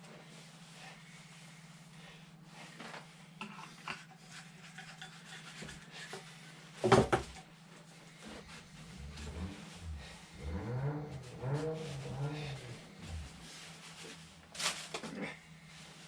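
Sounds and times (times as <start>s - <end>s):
rubbing and scraping: 2.6s - 6.8s, 7.5s - 15.0s
steady low hum: 7.4s - 16.0s.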